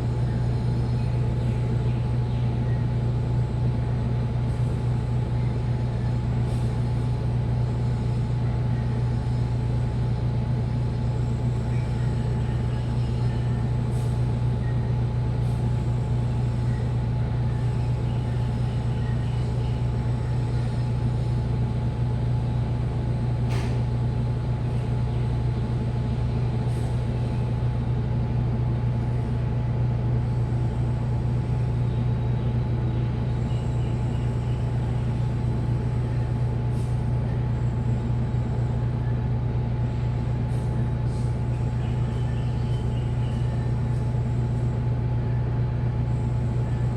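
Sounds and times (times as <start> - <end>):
brief click: 23.5 - 23.8.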